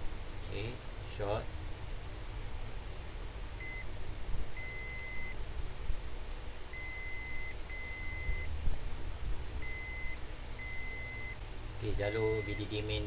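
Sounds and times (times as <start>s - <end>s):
multimeter continuity beeps: 3.6s - 3.9s, 4.6s - 5.4s, 6.7s - 8.5s, 9.6s - 12.9s.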